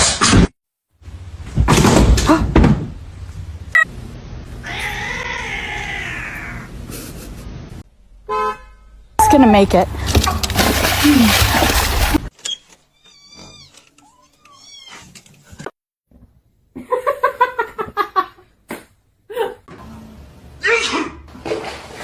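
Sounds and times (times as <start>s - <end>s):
cats meowing: 4.6s - 6.7s.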